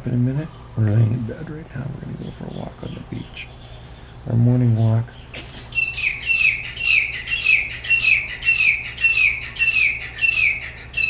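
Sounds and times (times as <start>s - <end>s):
bird calling harsh notes: 5.2s - 11.0s.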